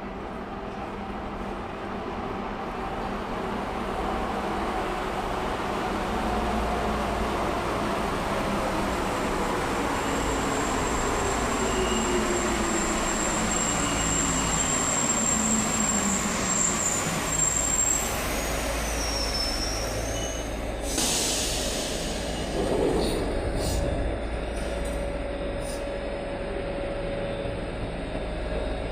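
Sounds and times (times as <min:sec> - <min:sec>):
brake air hiss: 0:20.8 - 0:22.6.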